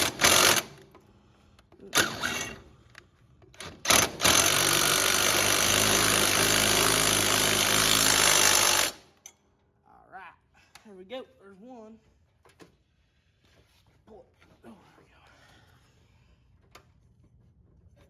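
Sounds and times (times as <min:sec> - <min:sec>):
handheld power tool running: 0:00.0 - 0:00.8, 0:01.9 - 0:02.6, 0:03.6 - 0:09.0.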